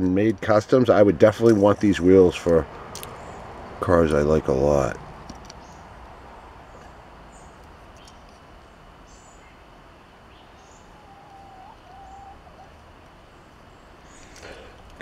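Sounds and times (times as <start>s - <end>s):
low outdoor hum: 0.0s - 15.0s
birds chirping: 1.6s - 14.8s.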